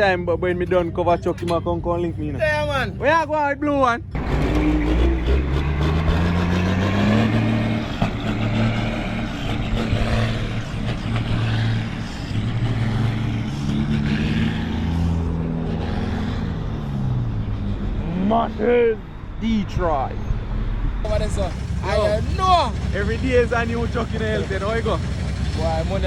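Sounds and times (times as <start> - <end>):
diesel truck engine under load: 0.0 - 18.1, 20.2 - 26.0.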